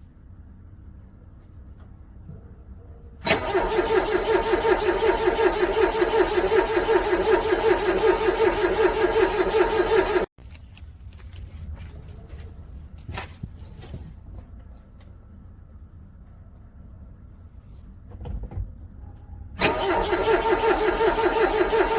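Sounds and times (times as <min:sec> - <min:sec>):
car engine cranking: 0:03.2 - 0:10.3, 0:19.6 - 0:21.9.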